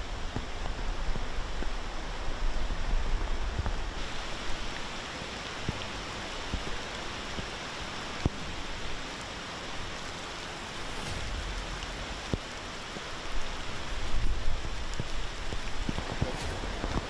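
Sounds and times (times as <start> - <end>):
rain falling on water: 0.0 - 17.0
raindrops ticking: 3.2 - 17.0
low rumble: 10.0 - 17.0.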